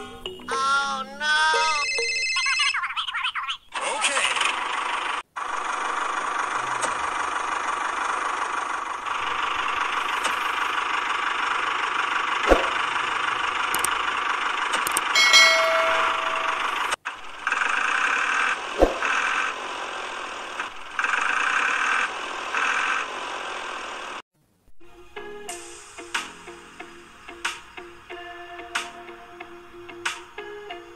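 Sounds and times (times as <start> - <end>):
small motor running: 4.2 - 15.2, 16.2 - 23.1
sharp click: 13.8 - 14.0, 14.8 - 15.1.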